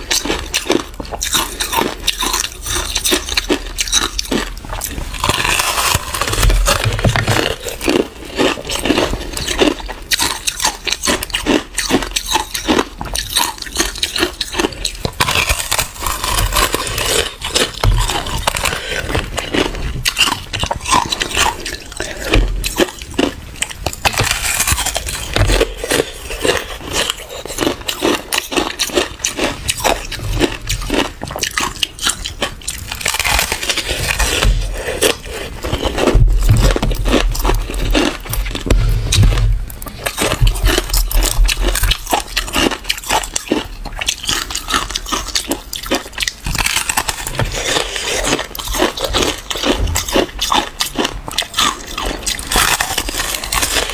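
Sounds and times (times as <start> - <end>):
chewing crunchy ice: 0.0 - 53.9.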